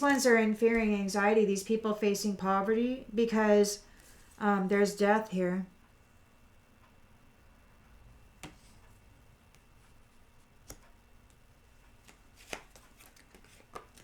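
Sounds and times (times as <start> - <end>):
cards clicking and tapping: 8.4 - 8.7, 10.6 - 14.0.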